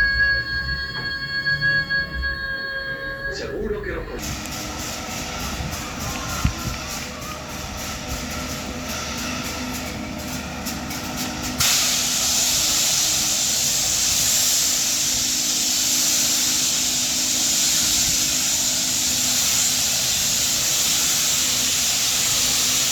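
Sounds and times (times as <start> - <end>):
sea surf hissing on shore: 11.6 - 22.9.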